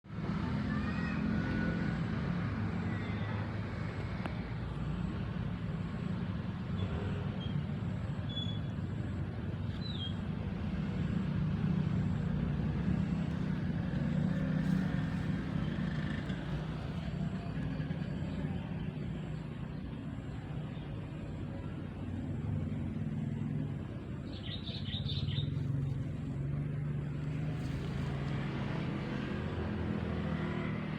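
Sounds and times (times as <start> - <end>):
low engine hum: 0.1 - 30.9
birds chirping: 22.8 - 27.8.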